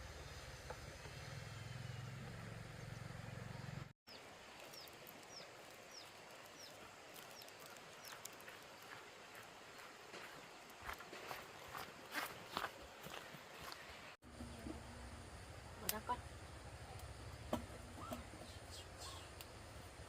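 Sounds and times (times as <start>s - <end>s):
bird chirping: 18.0s - 19.6s.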